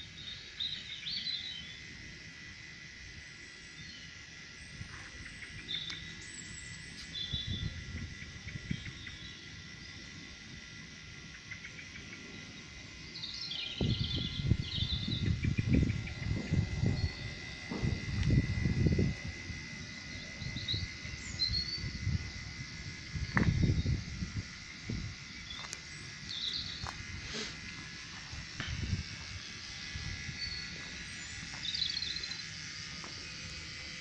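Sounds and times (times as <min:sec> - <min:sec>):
high insect trill: 0:00.0 - 0:34.0
bird chirps: 0:11.4 - 0:17.5, 0:20.0 - 0:24.0, 0:25.2 - 0:27.0, 0:29.4 - 0:32.5
low rumbling noise: 0:12.4 - 0:34.0.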